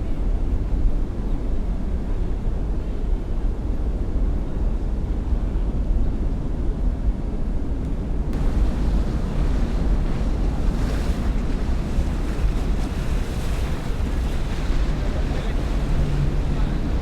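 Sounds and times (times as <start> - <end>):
wind rumbling on microphone: 0.0 - 17.0
water and waves washing: 8.3 - 17.0.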